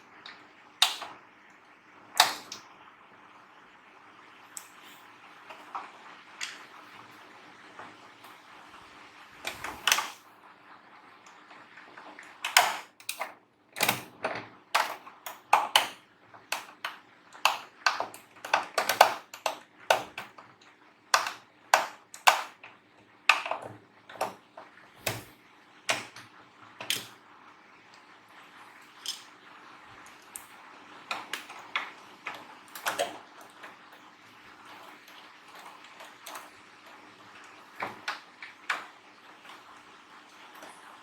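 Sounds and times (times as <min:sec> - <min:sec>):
faint steady hum: 0:00.0 - 0:41.0
small tools clicking and tapping: 0:12.4 - 0:20.4, 0:21.1 - 0:24.4.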